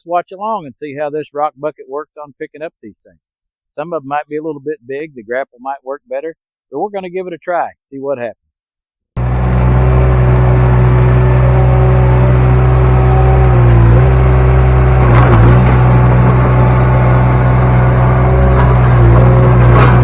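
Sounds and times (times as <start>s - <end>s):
skid steer engine at high throttle: 9.2s - 20.0s.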